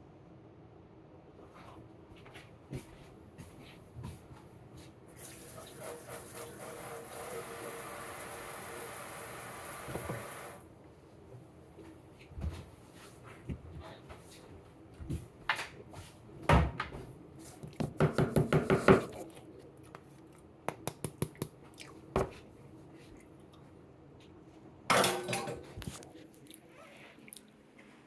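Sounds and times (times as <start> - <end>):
dishes and utensils knocking: 24.9 - 25.7
dishes clattering: 24.9 - 25.8.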